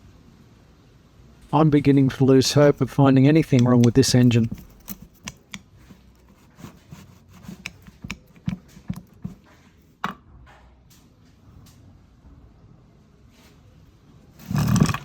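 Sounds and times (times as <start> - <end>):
metal engine parts clicking: 2.5 - 5.7.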